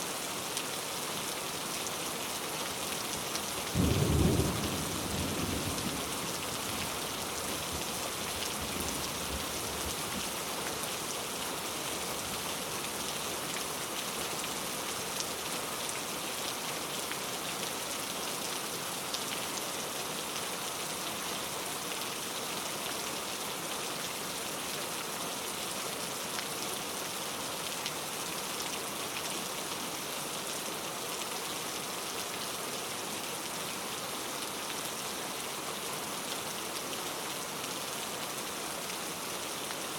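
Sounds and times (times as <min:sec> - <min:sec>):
steady rain falling: 0:00.0 - 0:39.9
low thunder rumble: 0:03.8 - 0:06.2.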